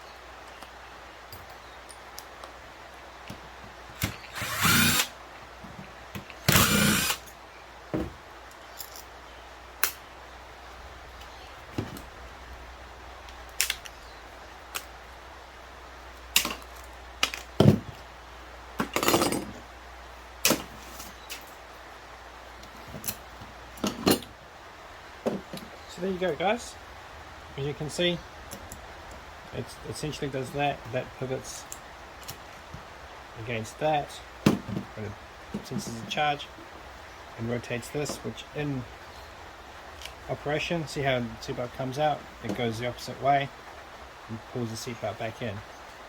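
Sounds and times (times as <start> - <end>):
power drill bursts: 4.0 - 5.1, 6.4 - 7.3
metal parts clicking and knocking: 18.8 - 19.6.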